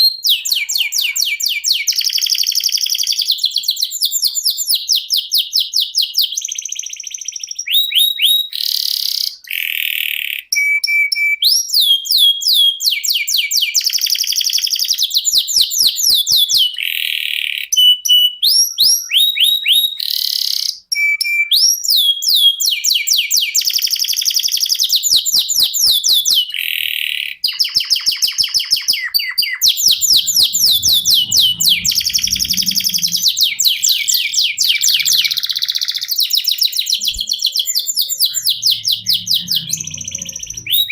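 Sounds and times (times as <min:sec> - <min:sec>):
canary singing trills: 0:24.9 - 0:40.9.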